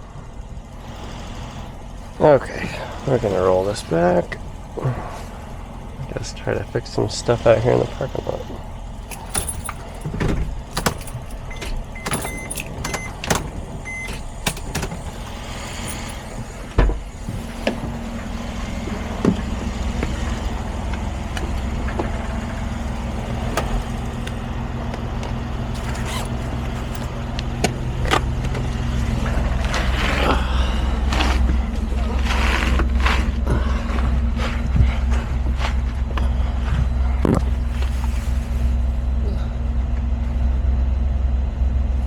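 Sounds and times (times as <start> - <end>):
diesel engine humming: 0.0 - 42.0
clicks in a cab: 9.1 - 17.0
short beeps: 13.8 - 14.2.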